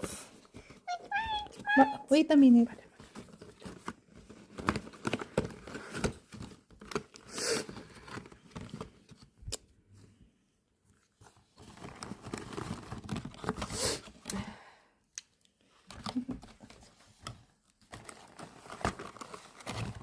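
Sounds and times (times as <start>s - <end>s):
packaging crinkling and rustling: 2.9s - 9.4s, 10.9s - 14.0s, 15.8s - 20.0s.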